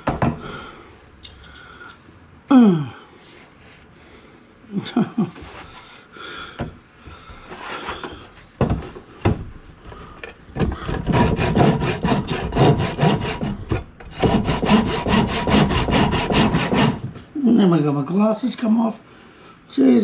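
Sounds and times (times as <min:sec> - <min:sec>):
knocks: 0:00.0 - 0:00.5
hand saw cutting wood: 0:10.6 - 0:17.1.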